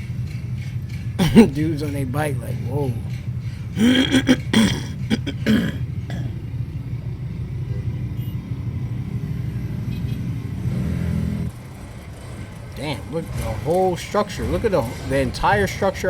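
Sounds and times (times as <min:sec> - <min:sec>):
vehicle engines humming: 0:00.0 - 0:16.0
short voice exclamations: 0:01.2 - 0:01.9, 0:03.8 - 0:06.4.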